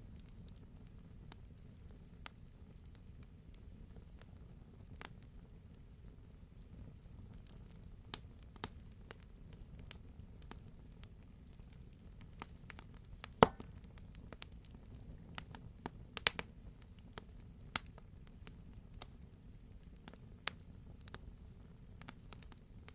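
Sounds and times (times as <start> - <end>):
campfire crackling: 0.1 - 22.9
fire popping: 6.0 - 22.9.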